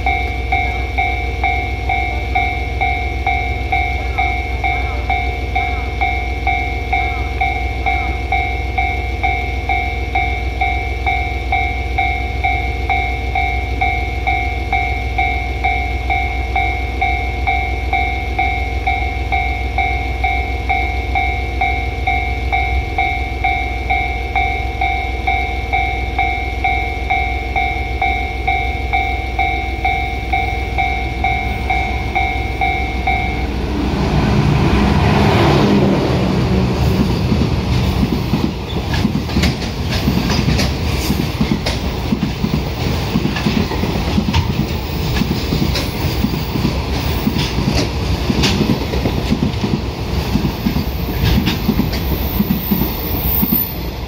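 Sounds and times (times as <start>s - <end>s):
pulsing warning tone: 0.0s - 39.0s
diesel locomotive rumble: 0.0s - 54.0s
wheels clickety-clack on rails: 0.0s - 54.0s.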